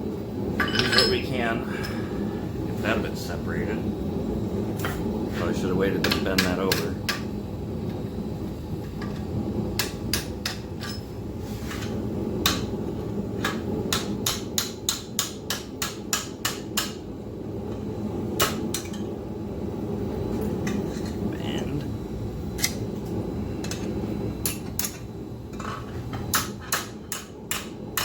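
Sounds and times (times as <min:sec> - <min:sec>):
steady low hum: 0:00.0 - 0:28.0
hammer striking steel on anvil: 0:09.8 - 0:11.0, 0:13.4 - 0:17.0, 0:26.3 - 0:28.0.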